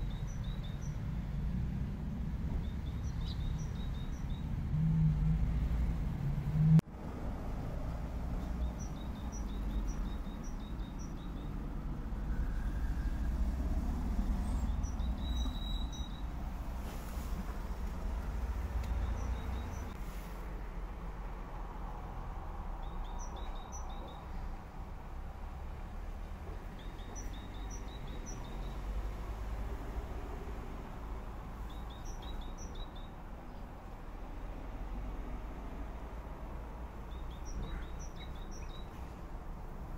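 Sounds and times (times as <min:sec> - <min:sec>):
songbird chirping: 0:00.0 - 0:01.4, 0:02.4 - 0:06.8, 0:08.3 - 0:20.1, 0:22.7 - 0:24.6, 0:26.2 - 0:33.8, 0:36.9 - 0:39.4.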